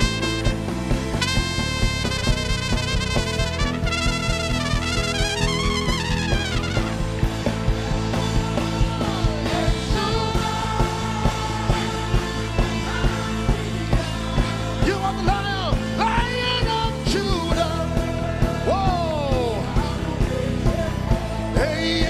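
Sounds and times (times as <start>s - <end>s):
sustained chords: 0.0s - 14.0s
sliding lead melody: 0.0s - 18.4s
steady drum beat: 0.0s - 22.0s.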